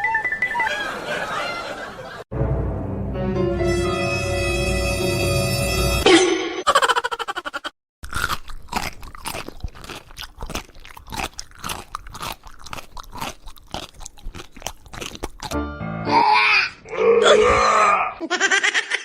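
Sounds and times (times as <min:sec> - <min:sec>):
crunchy chewing: 0:08.0 - 0:15.6.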